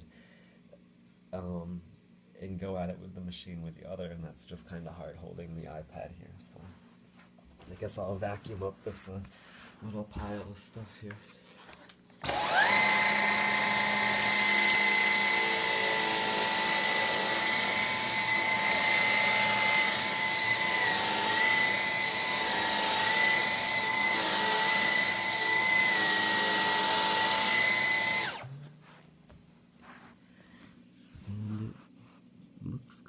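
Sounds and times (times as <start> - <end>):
cordless vacuum whining: 12.2 - 29.0.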